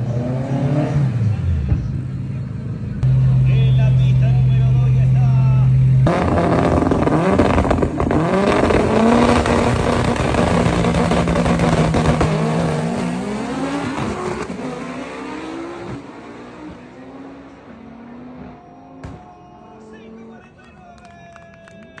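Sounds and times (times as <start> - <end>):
race cars accelerating hard: 0.0 - 3.4, 6.0 - 20.7
engine note shifting gears: 2.9 - 19.2.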